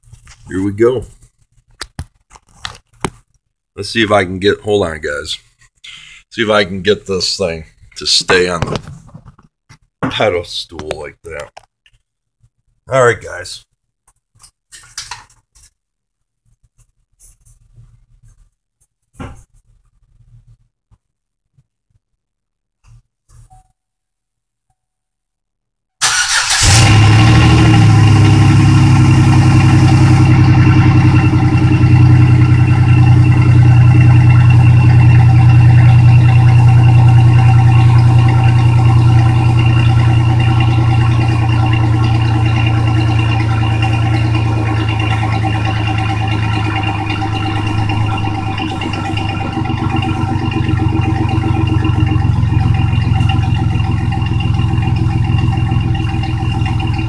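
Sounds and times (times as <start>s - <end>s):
truck engine starting and idling: 26.0s - 57.0s.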